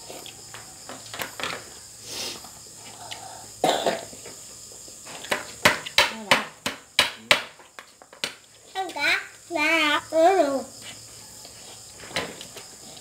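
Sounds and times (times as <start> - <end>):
cough-like burst: 3.6 - 4.2.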